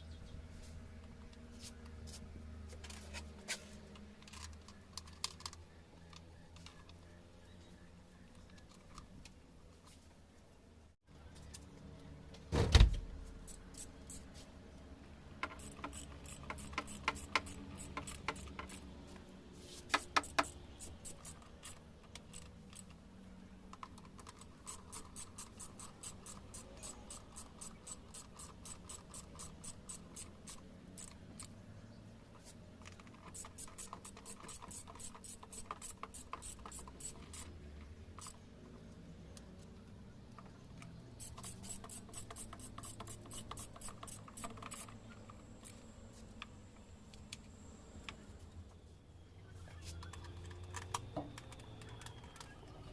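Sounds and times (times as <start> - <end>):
ratchet clicking: 15.4 - 18.8, 19.9 - 22.9, 24.2 - 31.5, 33.2 - 37.5, 38.2 - 38.4, 41.2 - 45.0.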